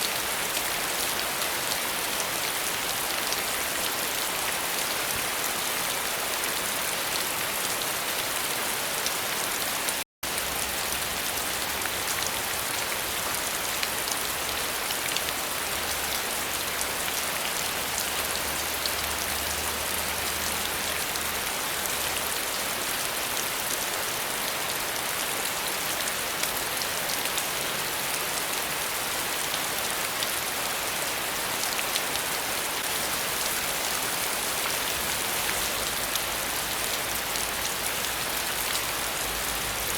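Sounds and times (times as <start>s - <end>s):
rain hissing on a surface: 0.0s - 39.9s.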